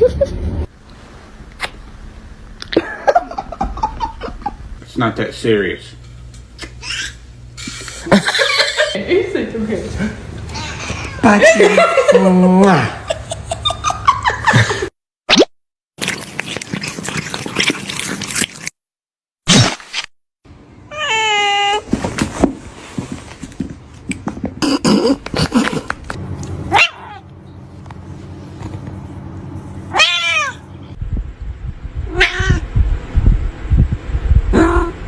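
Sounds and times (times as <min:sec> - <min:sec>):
cat meowing: 0:29.9 - 0:30.6, 0:32.1 - 0:32.6.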